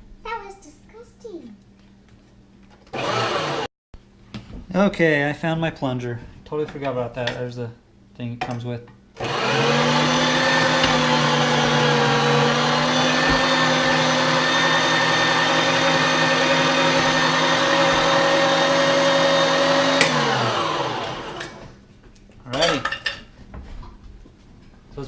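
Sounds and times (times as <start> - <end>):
meat grinder motor running: 2.9 - 3.7, 9.2 - 21.6.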